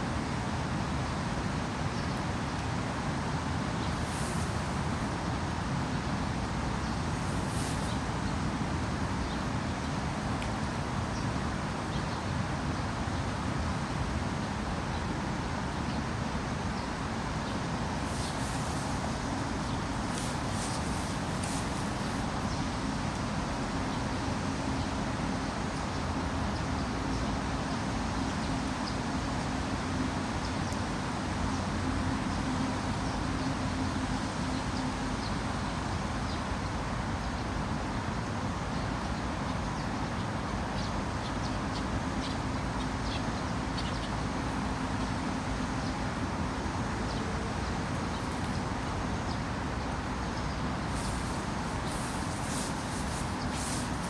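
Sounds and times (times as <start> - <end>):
running floodwater: 41.9 - 54.0.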